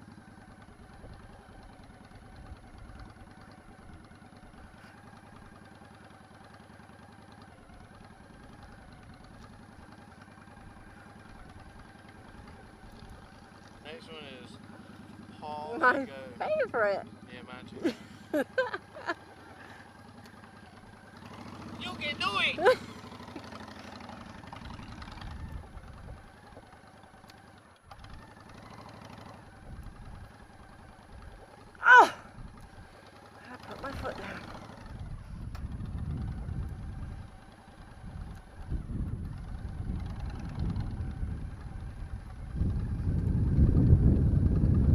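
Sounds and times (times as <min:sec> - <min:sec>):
motorcycle engine idling: 0:00.0 - 0:44.9.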